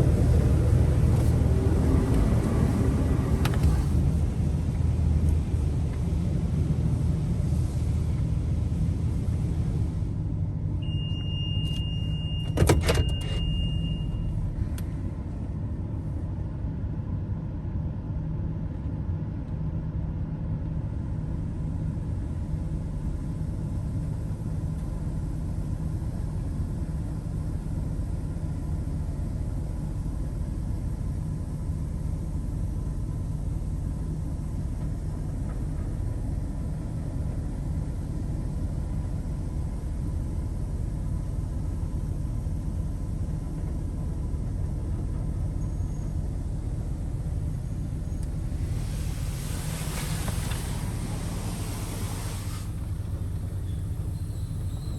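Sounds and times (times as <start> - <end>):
car engine idling: 0.0 - 7.1, 46.6 - 54.9.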